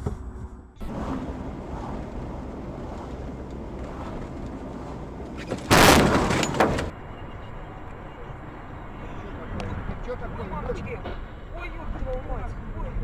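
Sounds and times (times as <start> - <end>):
car road and engine noise: 0.0 - 13.0
loud vehicle crash: 0.8 - 7.0.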